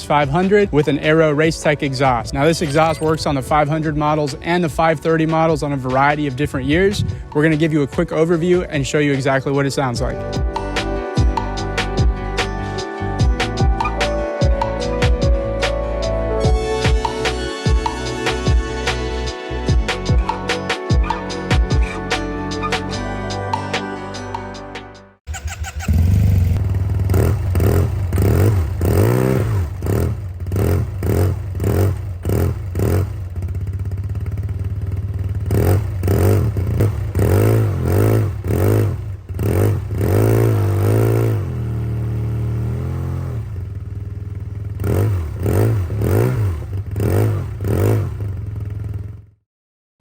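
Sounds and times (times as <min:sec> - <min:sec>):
scooter engine revving: 0:25.3 - 0:49.3.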